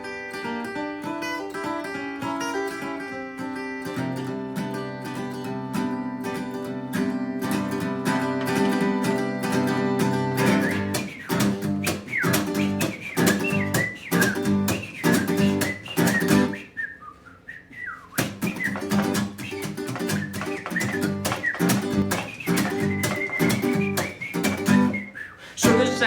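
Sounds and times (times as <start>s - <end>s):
strummed acoustic guitar: 0.0s - 16.7s, 18.1s - 26.0s
whistled melody: 9.5s - 26.0s.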